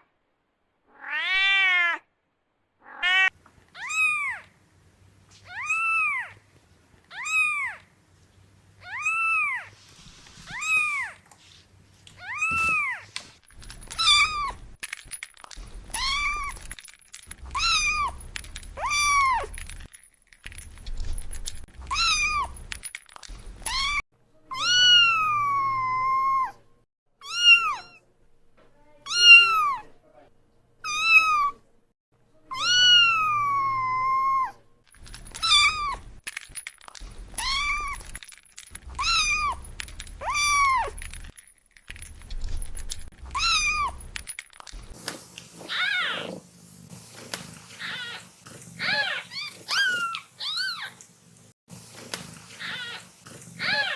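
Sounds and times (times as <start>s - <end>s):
kitten meowing: 23.7s - 26.6s, 27.2s - 28.0s, 29.1s - 29.9s, 30.8s - 31.6s, 32.5s - 34.6s, 43.3s - 44.0s.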